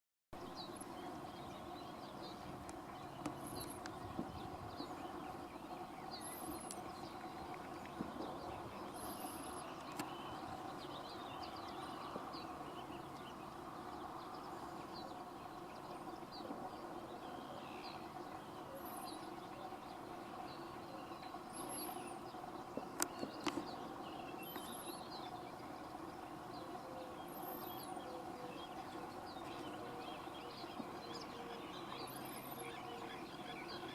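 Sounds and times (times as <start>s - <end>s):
birds chirping: 0.4s - 33.9s
steady background hum: 0.4s - 33.9s.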